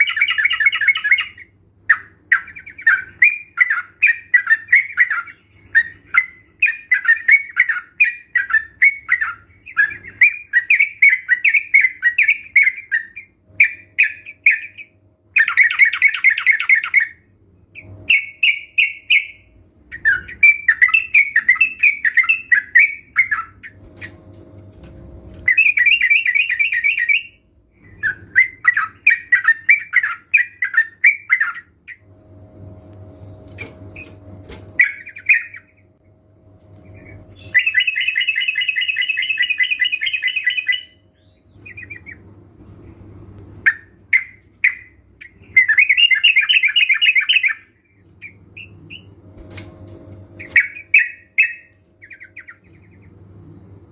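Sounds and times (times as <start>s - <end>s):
birds chattering and singing: 0.0s - 32.2s, 33.2s - 53.9s.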